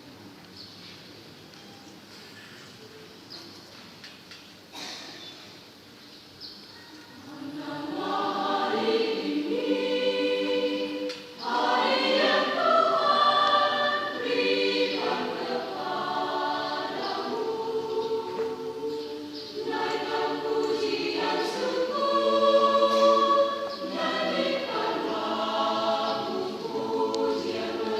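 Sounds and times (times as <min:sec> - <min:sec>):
church choir singing: 0:07.2 - 0:27.9.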